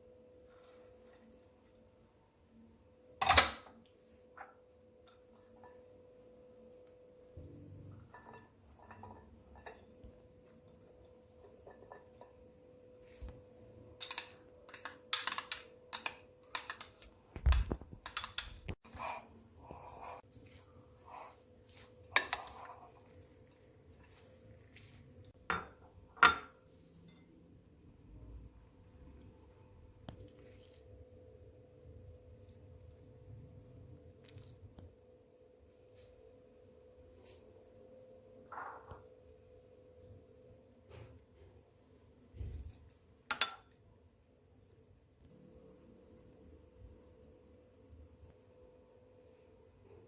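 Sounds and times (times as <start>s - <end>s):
cutlery clinking on dishes: 43.3s - 43.8s.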